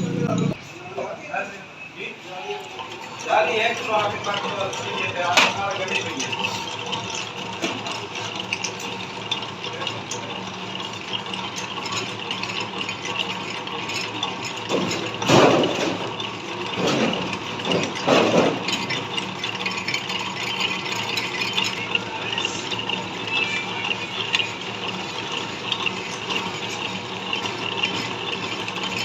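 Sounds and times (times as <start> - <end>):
metal lathe rattle and hum: 0.0 - 0.6, 1.9 - 29.0
grinding bursts: 2.0 - 29.0.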